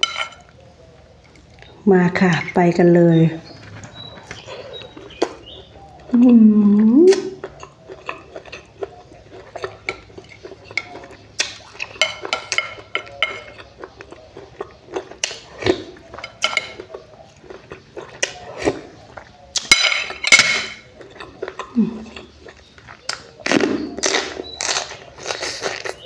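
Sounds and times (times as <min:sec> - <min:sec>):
cutlery clinking on a dish: 0:00.0 - 0:00.5, 0:09.5 - 0:13.8, 0:15.2 - 0:17.0, 0:19.6 - 0:21.4
chewing: 0:00.0 - 0:01.8, 0:03.3 - 0:26.0.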